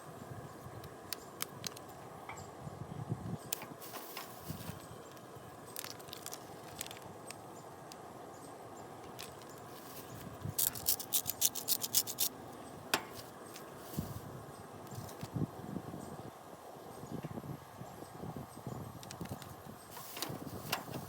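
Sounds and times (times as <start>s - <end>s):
outdoor background noise: 0.0s - 21.0s
light clicks and scrapes: 3.5s - 7.4s, 9.0s - 12.4s, 19.0s - 21.0s.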